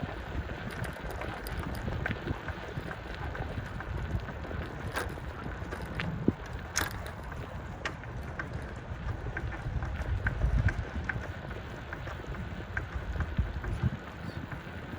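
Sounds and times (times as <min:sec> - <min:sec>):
bicycle clicks and rattles: 0:00.0 - 0:14.9
wind buffeting microphone: 0:00.0 - 0:14.9.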